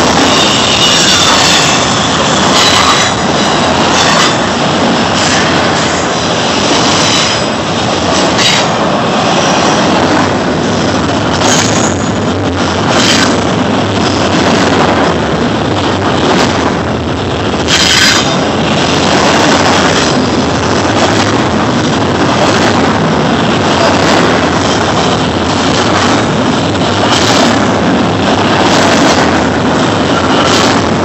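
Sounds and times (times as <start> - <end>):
steel train wheels on rail: 0.0 - 31.0
high wheel screech: 0.2 - 4.4.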